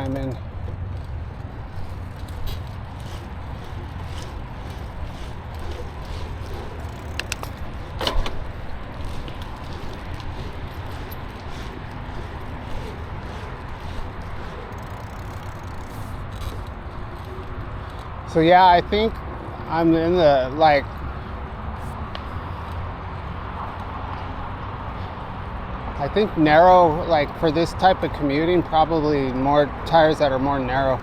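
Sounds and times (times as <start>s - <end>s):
bicycle tyre noise: 0.0s - 19.2s
bike rattling clicks: 0.0s - 19.3s.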